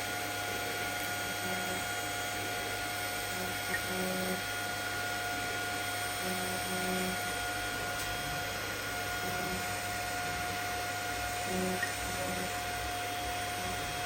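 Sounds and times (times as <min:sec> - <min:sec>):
electrical hum: 0:00.0 - 0:14.0
welding arc hissing: 0:06.0 - 0:14.0.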